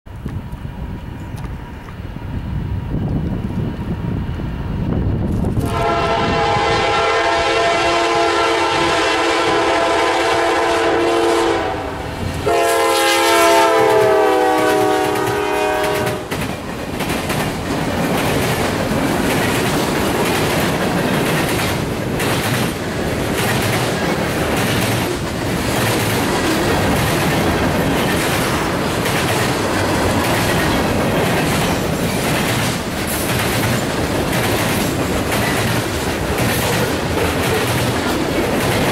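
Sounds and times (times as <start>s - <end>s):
locomotive air horn: 5.6s - 16.3s
freight train wheel clatter: 12.1s - 38.9s.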